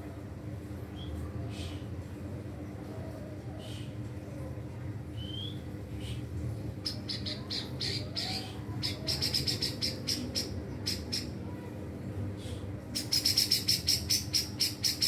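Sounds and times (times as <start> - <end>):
bird singing: 6.8 - 11.3, 13.0 - 15.0.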